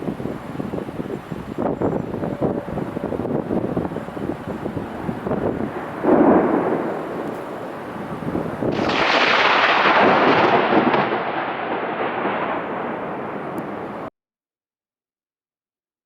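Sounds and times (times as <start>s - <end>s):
thunder crack and rumble: 5.1s - 14.1s.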